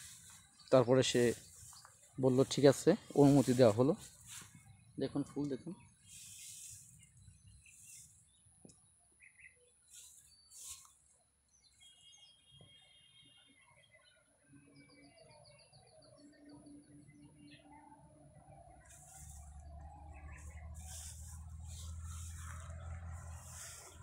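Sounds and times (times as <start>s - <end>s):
short hissing rustles: 6.0s - 8.2s.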